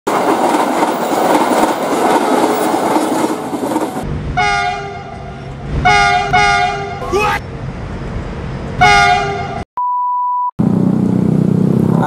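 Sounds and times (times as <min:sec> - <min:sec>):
wheel and rail clatter: 0:00.1 - 0:04.1
locomotive horn blast: 0:04.4 - 0:07.1, 0:08.8 - 0:09.6.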